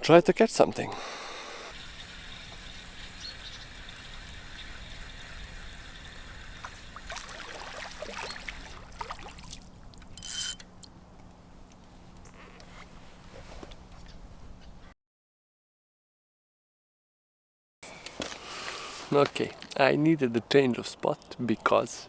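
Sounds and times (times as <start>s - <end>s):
river water lapping: 1.0s - 11.9s.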